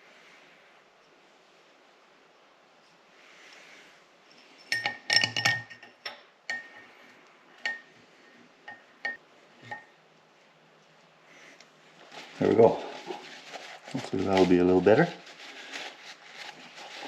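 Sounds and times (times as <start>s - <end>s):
metal clinking: 4.3s - 6.9s.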